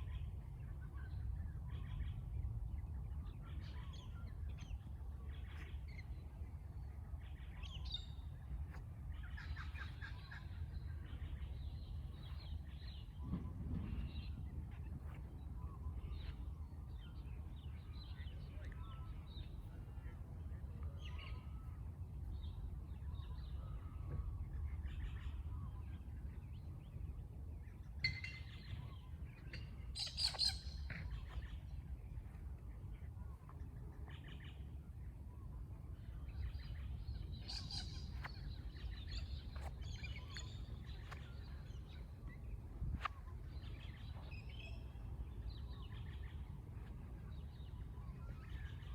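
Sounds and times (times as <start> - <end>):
low background rumble: 0.0 - 48.9
birds chirping and calling: 28.0 - 31.7, 36.3 - 48.9.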